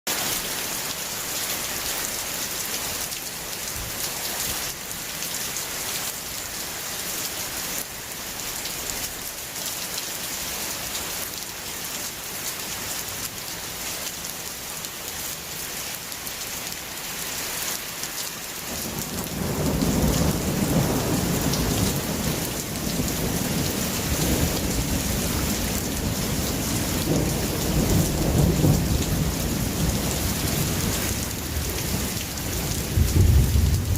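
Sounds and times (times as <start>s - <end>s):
rain hissing: 0.1s - 33.9s
thunder rumbling: 18.8s - 33.9s.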